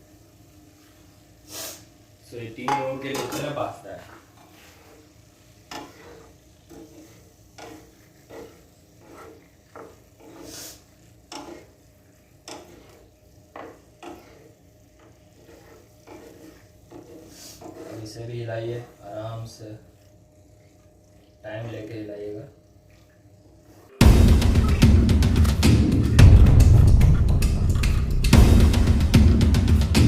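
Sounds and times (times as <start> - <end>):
faint sizzle: 0.0 - 25.0
spoon knocking and scraping pan: 2.6 - 18.2.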